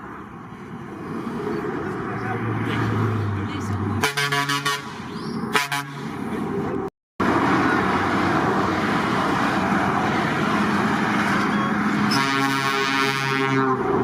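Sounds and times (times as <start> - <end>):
heavy trucks driving past: 0.0 - 14.0
truck air horn: 4.0 - 6.1, 12.1 - 13.9.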